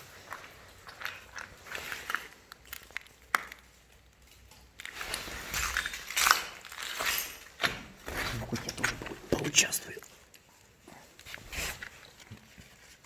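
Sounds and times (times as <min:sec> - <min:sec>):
dry wood crunching and crackling: 0:00.0 - 0:10.4
dry wood snapping: 0:02.0 - 0:08.0.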